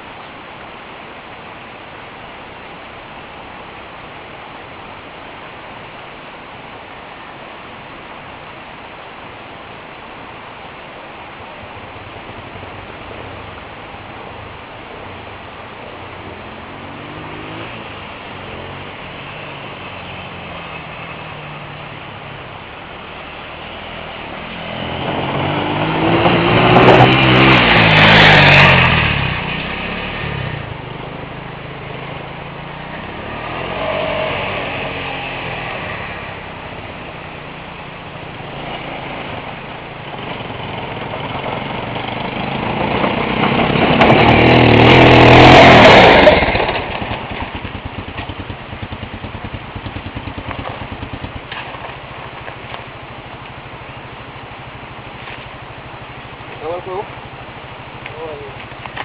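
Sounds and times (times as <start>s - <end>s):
motorcycle engines running: 11.8s - 59.0s.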